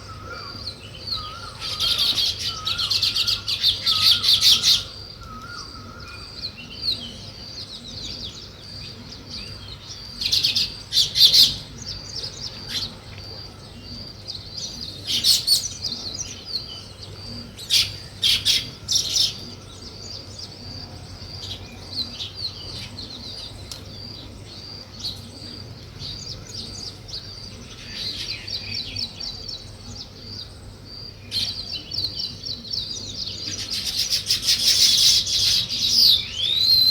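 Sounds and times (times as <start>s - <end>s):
birds chirping and chattering: 0.0s - 36.9s.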